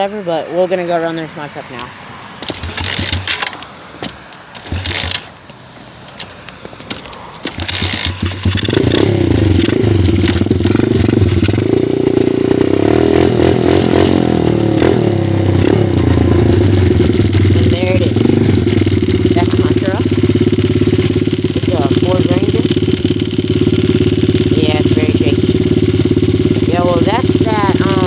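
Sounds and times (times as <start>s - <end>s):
clattering and scraping: 2.4s - 11.7s
dirt bike engine running: 2.4s - 28.0s.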